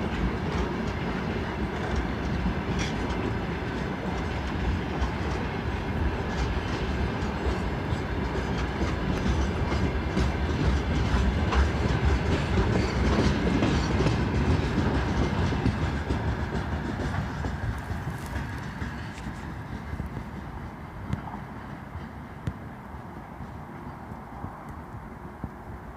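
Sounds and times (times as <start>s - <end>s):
wheels clicking over rail joints: 0.0s - 25.7s
freight train rolling past: 0.0s - 25.9s.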